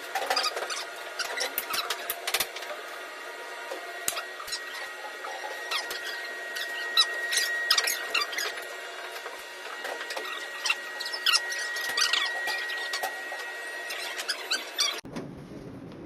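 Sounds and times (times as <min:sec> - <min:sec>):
printer high whine: 0:00.0 - 0:15.0
short squeaks and clicks: 0:00.2 - 0:02.2, 0:04.1 - 0:08.7, 0:09.8 - 0:15.0.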